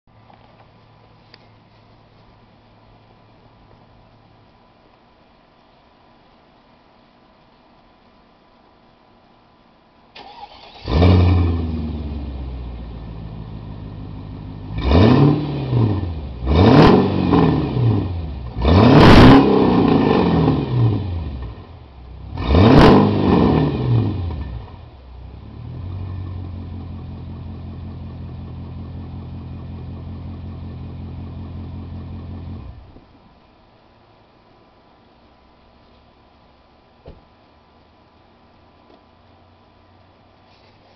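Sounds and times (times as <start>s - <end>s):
car exhaust revving and idling: 10.8s - 33.1s.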